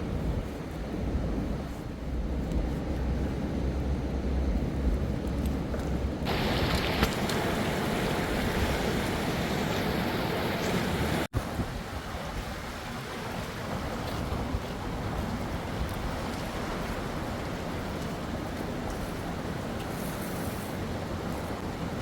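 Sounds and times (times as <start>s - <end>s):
river water rushing: 6.3s - 19.8s.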